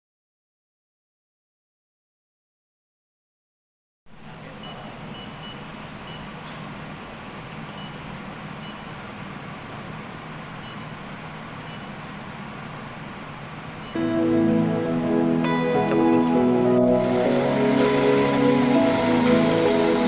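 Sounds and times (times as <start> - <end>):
faint high beeps: 4.5 - 6.3, 10.6 - 11.0, 11.6 - 12.0
packaging machinery running: 16.9 - 20.0.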